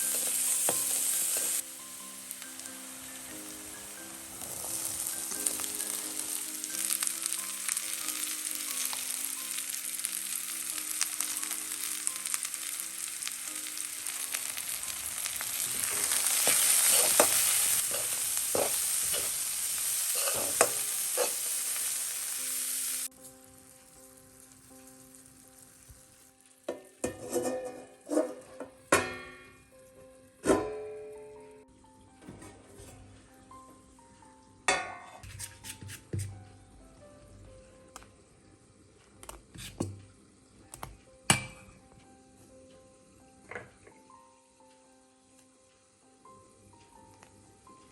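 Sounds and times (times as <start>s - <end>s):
food sizzling in a pan: 0.0s - 31.6s, 34.7s - 36.4s, 37.6s - 47.9s
soft background music: 0.0s - 47.9s
stirring knocks and scrapes: 27.0s - 28.8s, 35.0s - 36.4s, 39.2s - 40.0s.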